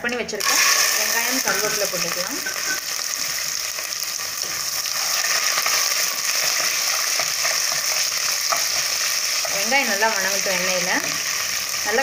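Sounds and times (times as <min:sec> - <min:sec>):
food sizzling in hot oil: 0:00.4 - 0:12.0
spoon stirring: 0:04.4 - 0:11.9.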